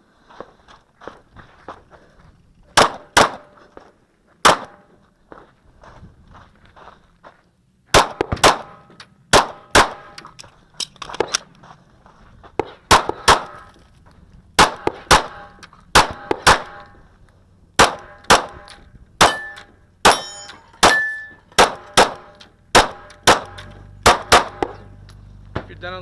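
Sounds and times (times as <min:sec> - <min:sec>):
pistol shots with ringing tail: 0:02.8 - 0:03.6, 0:04.4 - 0:04.9, 0:07.9 - 0:10.2, 0:12.9 - 0:13.7, 0:14.6 - 0:16.9, 0:17.8 - 0:25.0.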